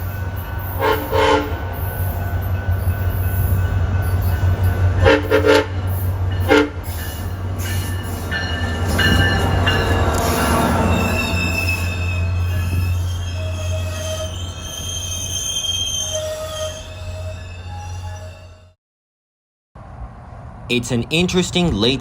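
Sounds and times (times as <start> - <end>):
train horn blasts: 0.7 - 1.9, 5.0 - 7.0
high-pitched wheel squeal: 10.7 - 18.8.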